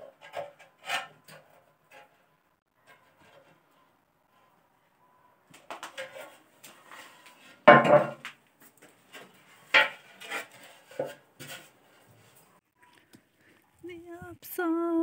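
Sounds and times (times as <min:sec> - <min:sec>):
hard objects knocking and clattering: 0:05.5 - 0:11.8
scraping: 0:05.6 - 0:13.6.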